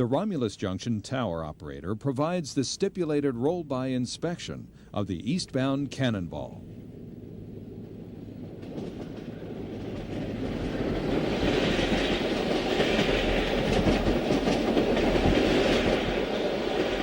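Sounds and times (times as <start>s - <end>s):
train wheels rushing and clicking: 7.7s - 17.0s.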